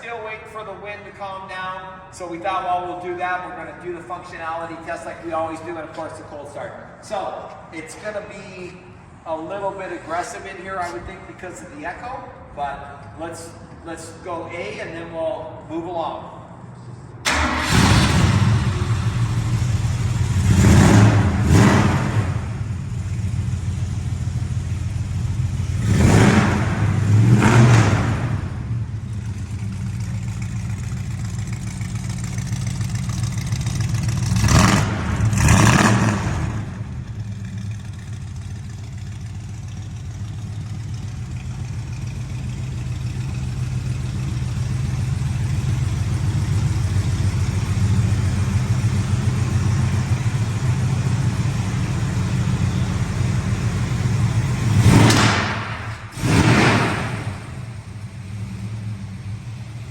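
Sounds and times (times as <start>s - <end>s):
car engine idling and revving: 17.2s - 59.9s.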